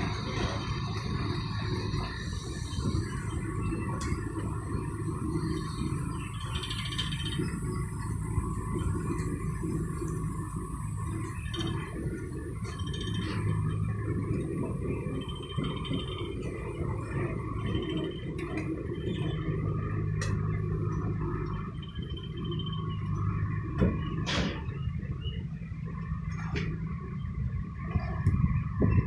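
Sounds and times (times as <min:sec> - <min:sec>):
high wheel squeaks: 0:00.0 - 0:25.6
train wheels rumbling on track: 0:00.0 - 0:29.0.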